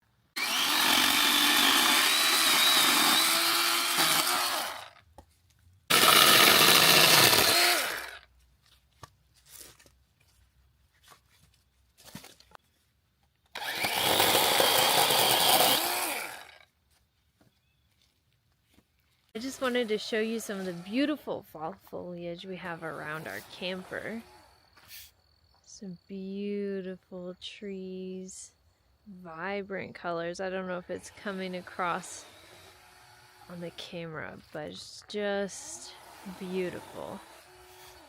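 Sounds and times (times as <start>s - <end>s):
chainsaw cutting firewood: 0.1s - 5.2s, 5.9s - 8.3s, 13.5s - 16.7s, 19.4s - 21.8s, 22.6s - 24.8s, 30.8s - 38.0s.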